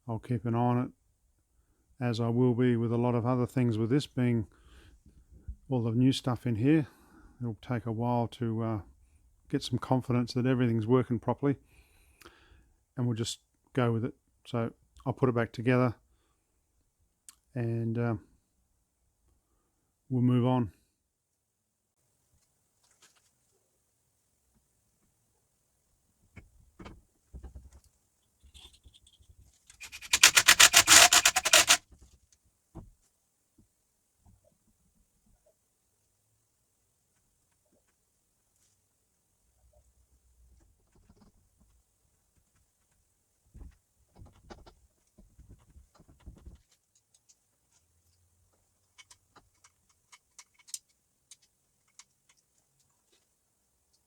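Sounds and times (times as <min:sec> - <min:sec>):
loud rasping strokes: 0:29.8 - 0:31.8
light clicks of small parts: 0:46.6 - 0:53.3.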